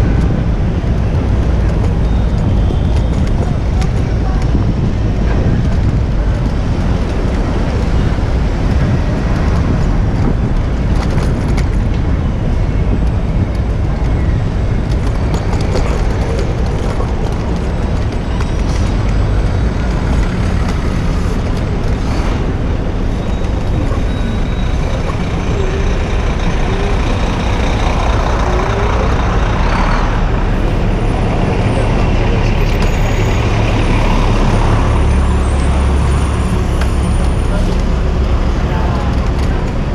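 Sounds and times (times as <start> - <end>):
street traffic passing: 0.0 - 39.9.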